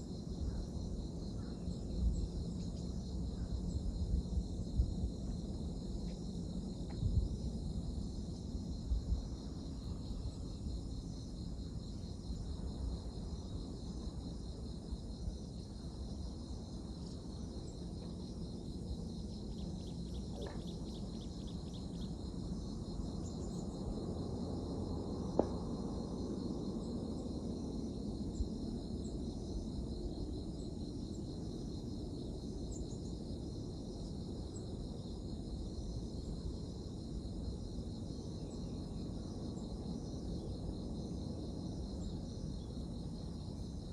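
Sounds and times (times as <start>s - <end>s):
insects chirring: 0.0s - 43.9s.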